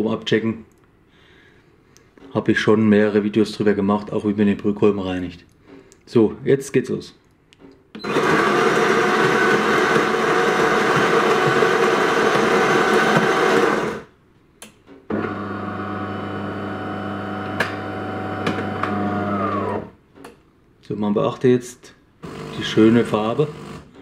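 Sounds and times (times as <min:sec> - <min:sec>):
coffee machine pump humming: 0:08.0 - 0:14.0, 0:15.1 - 0:19.9
coffee grinder running: 0:08.0 - 0:14.1, 0:15.1 - 0:19.9, 0:22.2 - 0:23.9.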